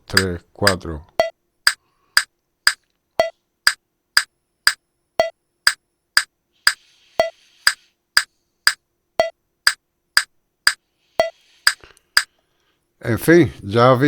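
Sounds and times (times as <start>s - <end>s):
metronome clicking: 0.0s - 6.3s.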